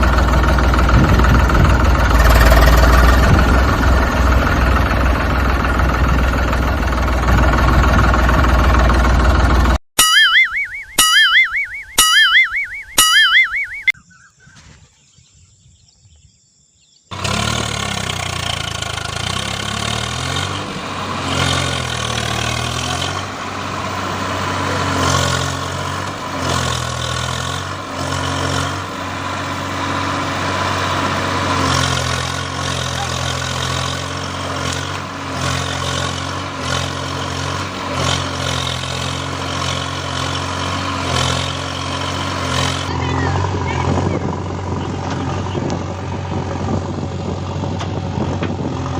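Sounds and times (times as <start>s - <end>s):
tractor engine running: 0.0s - 14.0s, 17.1s - 48.9s.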